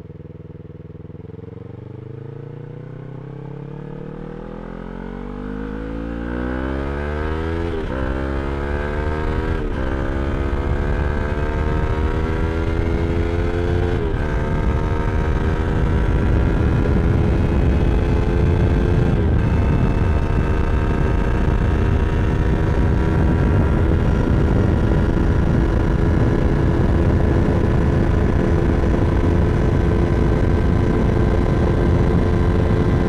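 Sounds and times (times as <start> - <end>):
motorcycle engine accelerating: 0.0 - 33.0
wind rush: 9.2 - 33.0.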